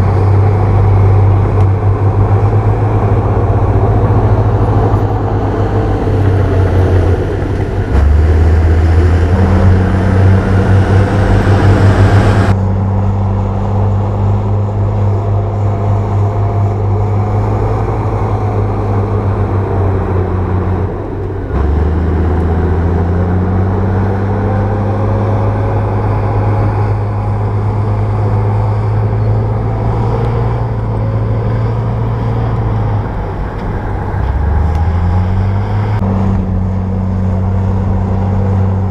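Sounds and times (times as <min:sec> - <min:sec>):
bulldozer diesel engine: 0:00.0 - 0:38.9
track noise: 0:00.0 - 0:38.9.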